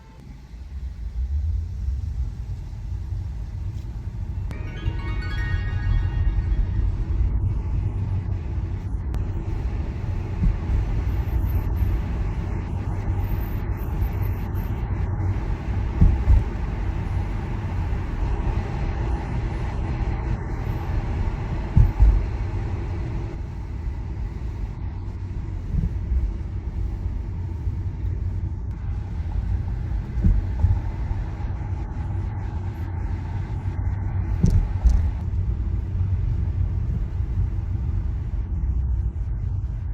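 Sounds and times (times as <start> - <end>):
tyre and road noise: 9.1 - 31.6
low thumps: 15.9 - 16.6, 30.0 - 30.9.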